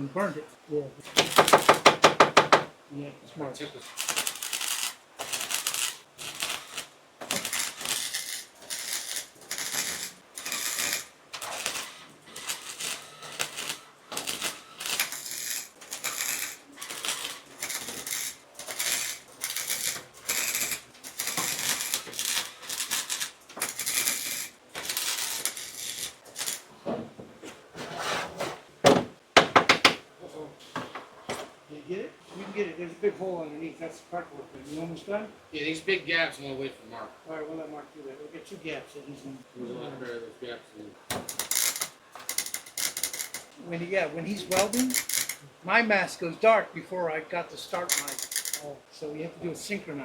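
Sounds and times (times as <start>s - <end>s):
welding arc bursts: 1.1s - 1.9s, 3.8s - 26.7s, 41.1s - 43.5s, 44.3s - 45.4s, 47.8s - 48.6s.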